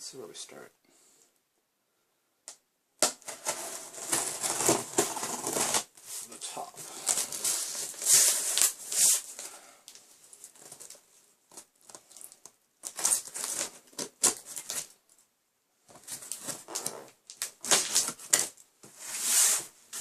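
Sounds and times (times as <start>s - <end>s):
cardboard rustling and scraping: 3.1s - 9.5s, 15.9s - 20.0s.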